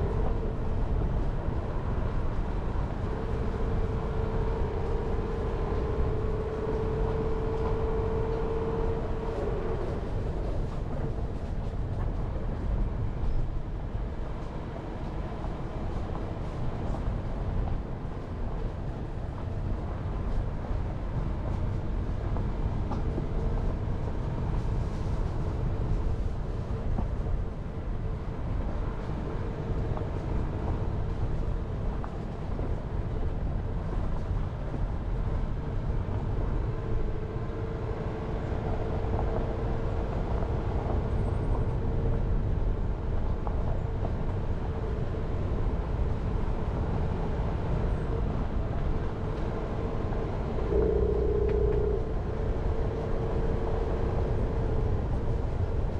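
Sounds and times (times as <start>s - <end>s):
tyres and engine rumbling: 0.0s - 55.9s
faint steady whine: 44.8s - 55.9s.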